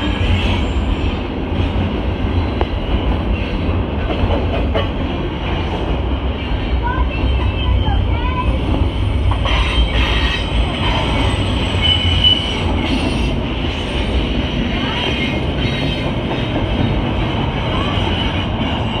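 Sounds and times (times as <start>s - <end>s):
train wheels rumbling on rail: 0.0s - 19.0s
high-pitched wheel squeal: 9.5s - 13.3s.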